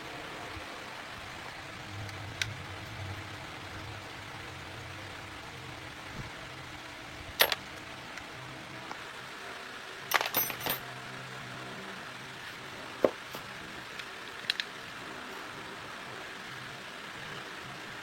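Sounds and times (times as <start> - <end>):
small metal objects clinking: 7.4 - 7.6, 10.1 - 10.9.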